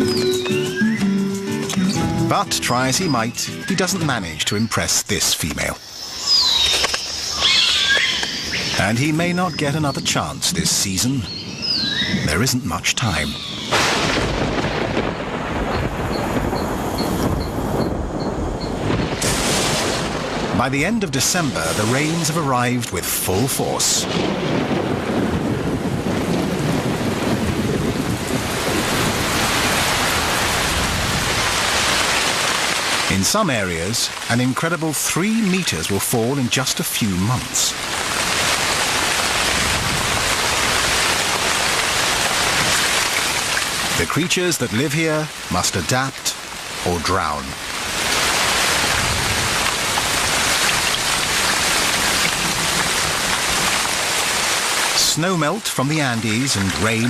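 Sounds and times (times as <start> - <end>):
heavy rain pouring: 0.0 - 57.0
low thunder rumbling: 13.4 - 22.4, 24.0 - 32.0, 47.8 - 54.3.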